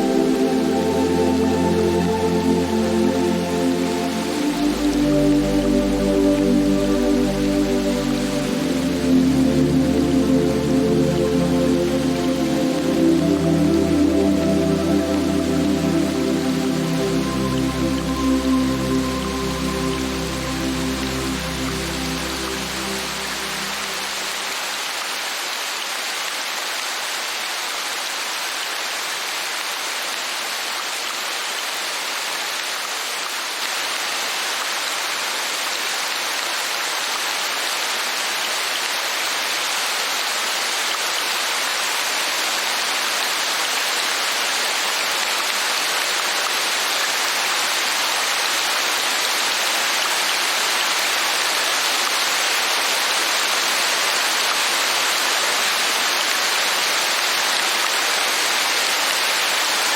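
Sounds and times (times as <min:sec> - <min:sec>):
heavy rain hissing: 0:00.0 - 0:25.5.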